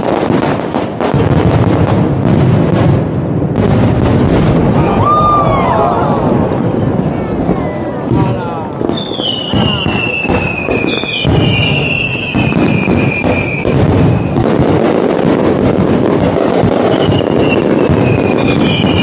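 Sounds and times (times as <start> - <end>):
fireworks bangs and crackling: 0.0 - 19.0
whistling fireworks: 0.0 - 19.0.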